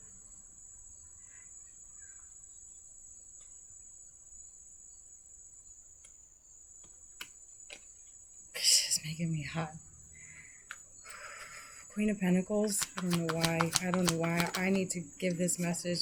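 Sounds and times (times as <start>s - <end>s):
faint high-pitched whine: 0.0s - 16.0s
light clicks: 12.6s - 15.7s.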